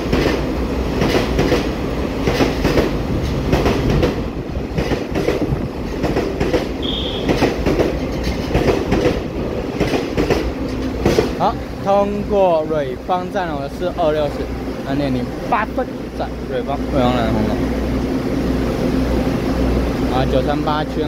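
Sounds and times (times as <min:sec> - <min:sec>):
wheels clacking over rail joints: 0:00.0 - 0:11.6
train rumbling: 0:00.0 - 0:21.0.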